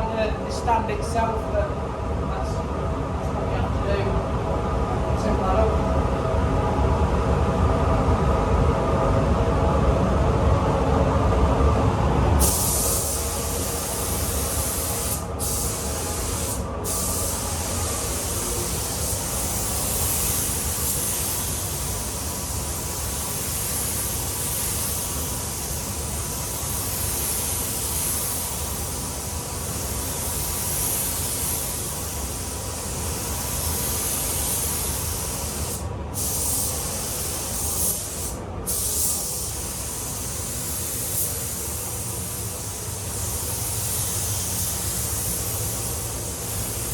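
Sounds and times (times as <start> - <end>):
low rumble: 1.2 - 12.6
paint spray gun hissing: 12.4 - 46.9.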